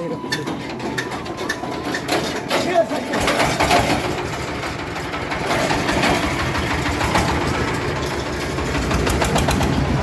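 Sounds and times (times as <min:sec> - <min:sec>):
men talking: 0:00.0 - 0:00.9, 0:02.2 - 0:03.6
tractor engine idling: 0:00.0 - 0:10.0
knocking rattle: 0:00.4 - 0:10.0.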